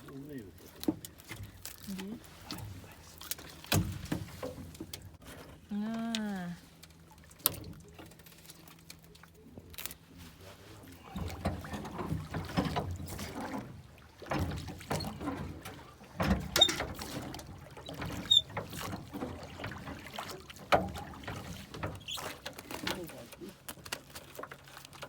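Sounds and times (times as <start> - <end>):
knocks and clatter from boat: 0.0 - 5.8, 6.6 - 25.0
water splashing: 6.1 - 25.0.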